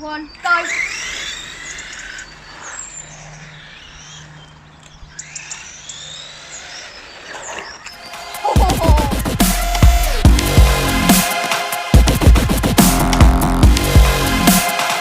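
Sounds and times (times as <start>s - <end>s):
small birds chirping: 0.0s - 10.2s
electronic dance music: 8.1s - 15.0s.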